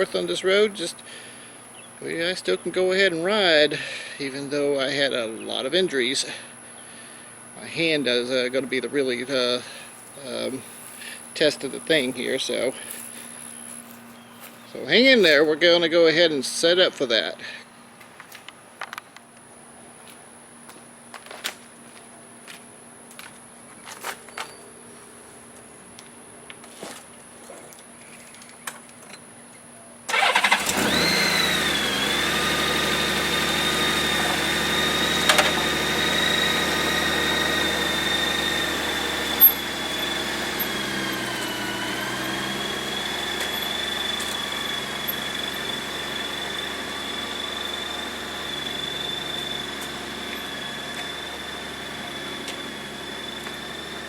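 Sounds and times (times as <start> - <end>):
motorcycle engine starting and idling: 30.1 - 54.0.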